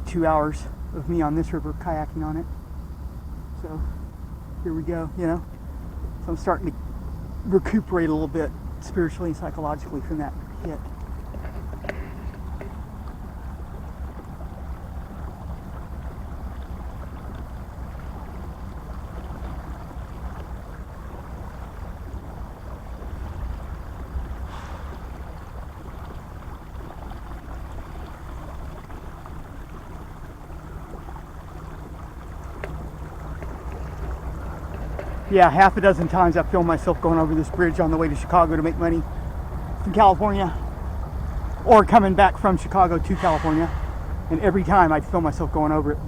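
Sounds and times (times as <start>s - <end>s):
water washing past kayak: 0.0s - 46.0s
wind rumbling on microphone: 0.0s - 46.0s
brief sharp sound: 43.2s - 44.1s.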